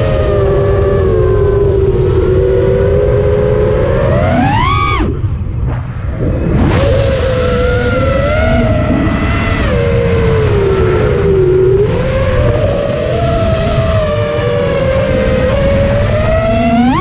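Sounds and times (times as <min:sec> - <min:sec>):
rc aircraft motor and propeller whine: 0:00.0 - 0:17.0
wind buffeting microphone: 0:00.0 - 0:17.0.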